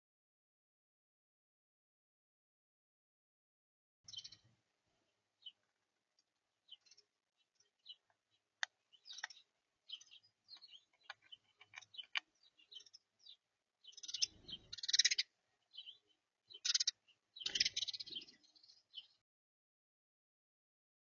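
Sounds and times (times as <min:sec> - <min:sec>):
small birds chirping: 0:04.1 - 0:19.2.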